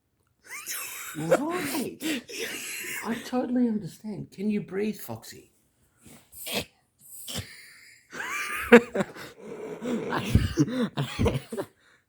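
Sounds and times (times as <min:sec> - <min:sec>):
dog coughing and gagging: 0:00.5 - 0:03.2, 0:10.0 - 0:11.7.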